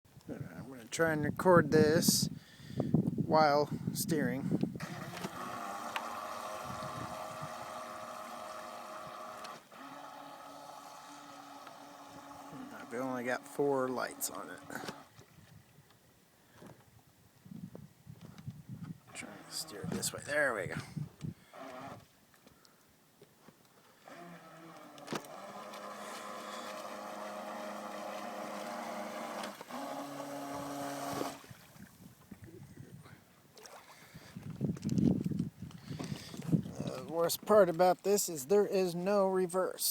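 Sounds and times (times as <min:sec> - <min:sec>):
small electric motor whining: 0:04.8 - 0:15.1, 0:21.4 - 0:22.1, 0:24.0 - 0:31.5.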